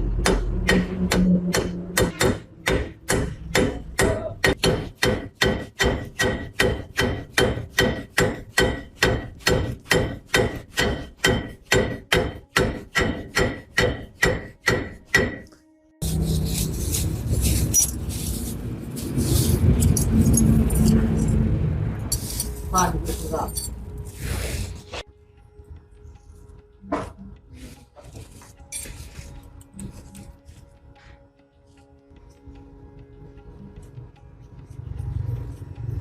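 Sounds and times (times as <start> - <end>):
hammer striking metal: 0.1 - 18.4.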